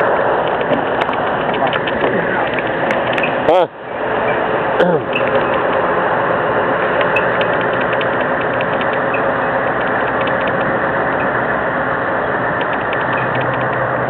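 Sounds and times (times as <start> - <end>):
truck diesel engine running: 0.0 - 14.0
fast irregular clicking rattle: 0.4 - 3.5, 5.1 - 5.9, 6.8 - 11.3, 12.5 - 14.0.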